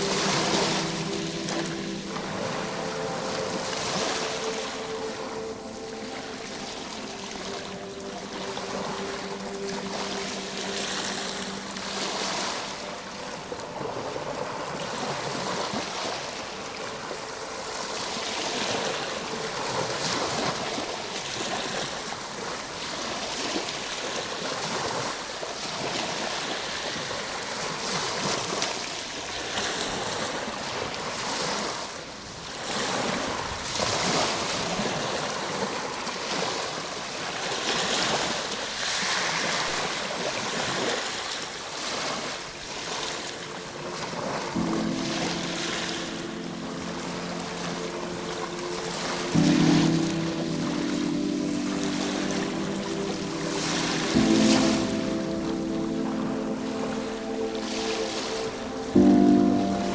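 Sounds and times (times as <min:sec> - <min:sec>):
soft held music tone: 0:00.0 - 0:22.8, 0:42.5 - 0:59.9
ocean waves: 0:00.0 - 0:59.9.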